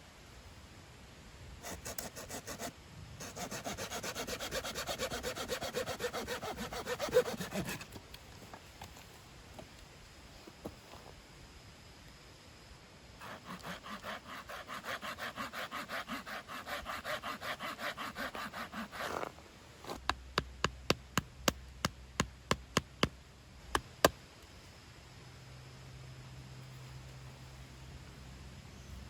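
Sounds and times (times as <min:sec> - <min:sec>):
hand saw cutting wood: 0:01.7 - 0:08.0, 0:13.2 - 0:19.3.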